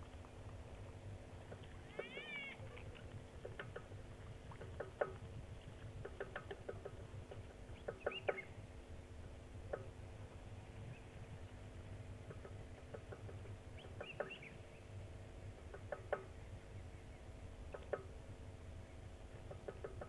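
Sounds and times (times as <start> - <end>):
steady low hum: 0.0 - 20.0
wild birds chirping: 6.0 - 8.6, 12.3 - 15.0.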